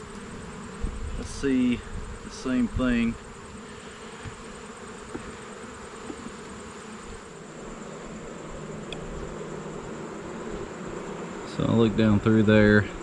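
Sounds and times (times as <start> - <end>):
bees buzzing: 0.0 - 13.0
faint ticks: 8.8 - 9.1.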